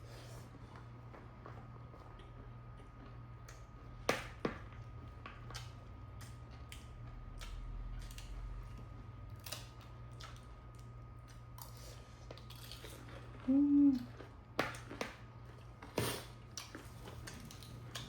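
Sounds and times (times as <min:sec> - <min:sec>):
crunchy eating sounds: 0:00.1 - 0:18.0.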